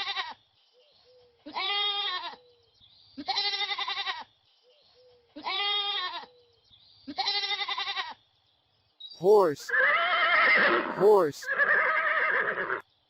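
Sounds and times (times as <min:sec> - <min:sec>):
goat bleating: 0:00.0 - 0:00.4, 0:01.4 - 0:02.4, 0:03.2 - 0:04.3, 0:05.4 - 0:06.3, 0:07.1 - 0:08.2.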